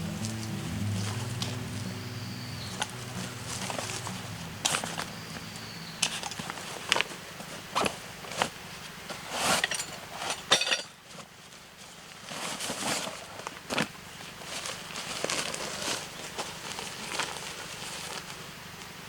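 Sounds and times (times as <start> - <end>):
rustling: 2.7 - 10.4, 11.0 - 18.5.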